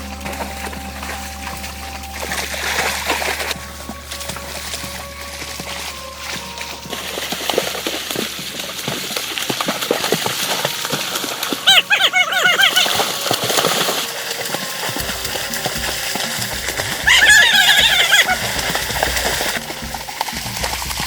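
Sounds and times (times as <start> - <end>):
wavering animal call: 10.5 - 20.1.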